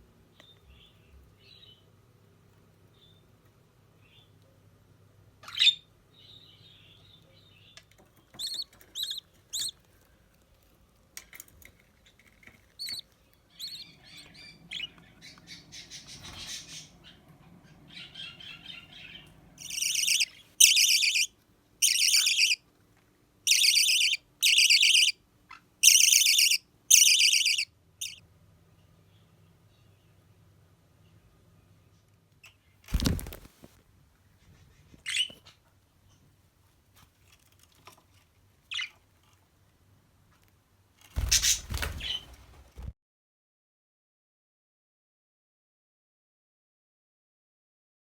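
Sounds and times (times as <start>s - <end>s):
budgerigar chirps: 8.4s - 9.7s, 17.9s - 22.6s, 23.5s - 28.2s
harsh buzzy bird calls: 13.6s - 22.6s, 41.2s - 42.3s.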